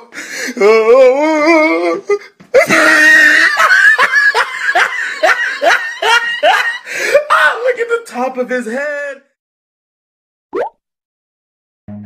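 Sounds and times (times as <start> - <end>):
man laughing hysterically: 2.5 - 7.5
wheezing gasps of laughter: 6.7 - 7.3.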